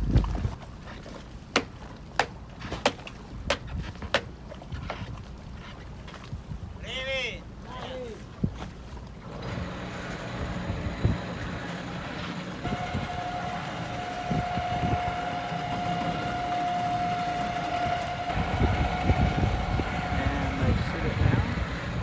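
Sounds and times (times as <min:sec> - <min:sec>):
low rumble: 0:00.0 - 0:00.5, 0:10.0 - 0:22.0
steady motor whine: 0:09.2 - 0:22.0.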